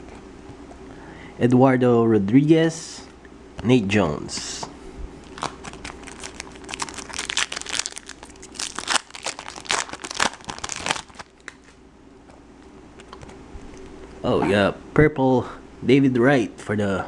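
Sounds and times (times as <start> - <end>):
foil wrapper crinkling and tearing: 5.2 - 11.8.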